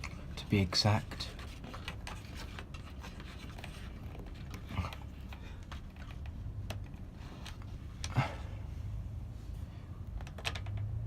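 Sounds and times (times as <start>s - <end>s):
scratching and rubbing: 0.0s - 6.5s.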